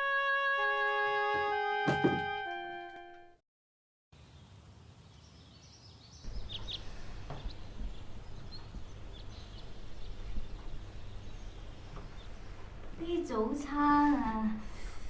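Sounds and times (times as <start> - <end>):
small birds chirping: 4.2 - 14.2
low background rumble: 6.3 - 15.0.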